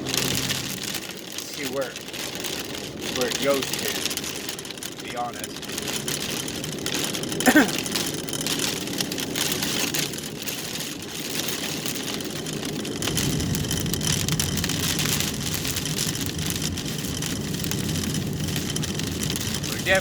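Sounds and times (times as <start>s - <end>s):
car engine running: 0.0s - 1.1s
low rumble: 0.0s - 1.3s
hail and rain on car roof: 0.0s - 20.0s.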